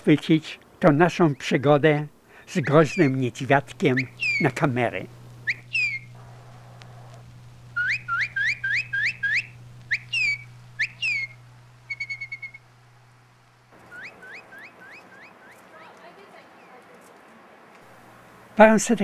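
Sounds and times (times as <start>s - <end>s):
bird whistling calls: 2.5s - 4.6s, 5.4s - 12.6s, 13.8s - 15.6s
bird trill: 2.6s - 4.6s, 5.4s - 7.1s, 7.8s - 12.6s, 13.8s - 15.7s.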